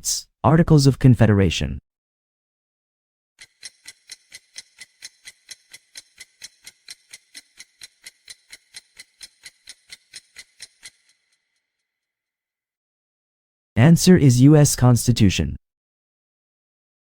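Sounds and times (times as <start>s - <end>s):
clock ticking: 3.4s - 11.2s.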